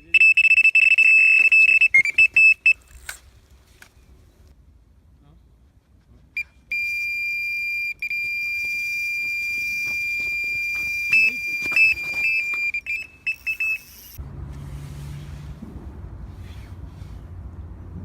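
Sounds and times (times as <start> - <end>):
bite alarm high tone and beeps: 0.0 - 2.8, 6.7 - 14.2.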